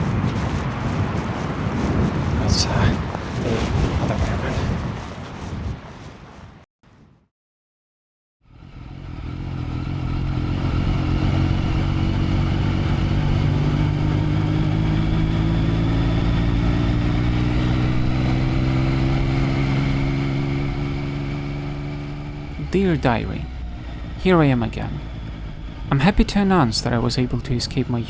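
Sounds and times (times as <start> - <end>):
motorcycle engine running: 8.5 - 28.0.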